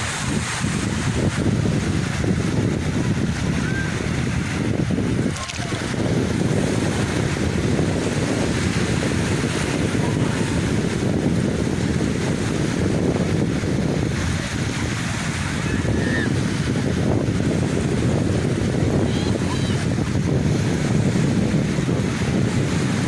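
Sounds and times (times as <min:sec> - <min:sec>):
sea waves washing on shore: 0:00.0 - 0:23.0
wind buffeting microphone: 0:00.0 - 0:23.0.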